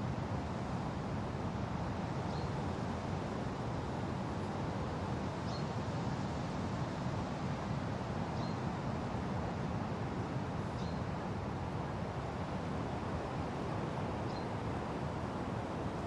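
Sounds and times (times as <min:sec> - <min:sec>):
wind through forest: 0:00.0 - 0:16.0.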